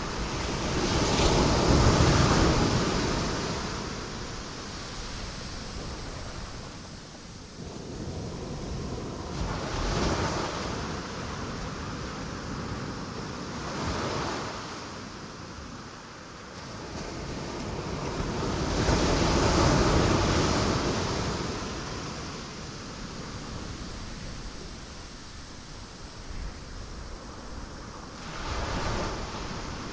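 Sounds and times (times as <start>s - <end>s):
ocean waves breaking on rocks: 0.0s - 11.0s, 17.3s - 29.9s.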